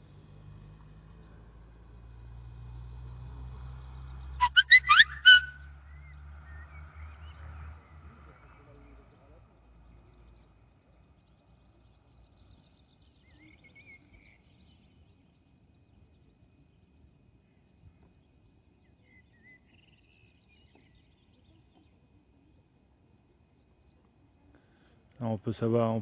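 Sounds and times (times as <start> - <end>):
bird warbling calls: 4.4 - 5.6.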